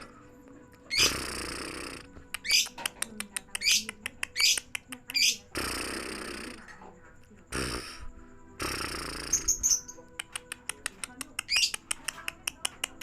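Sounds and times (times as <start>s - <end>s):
lovebird chirping: 0.0s - 6.6s, 7.6s - 10.6s, 11.4s - 12.1s
quick clicks: 10.1s - 13.0s.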